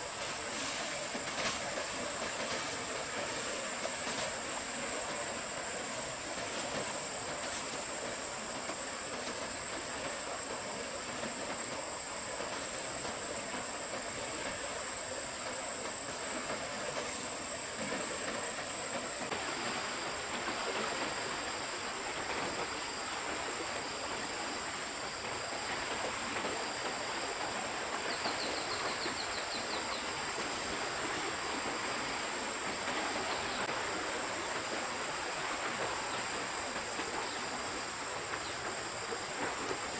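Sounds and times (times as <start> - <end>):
high insect drone: 0.0 - 39.9
stream water rushing: 0.0 - 39.9
high insect chirps: 21.2 - 33.7.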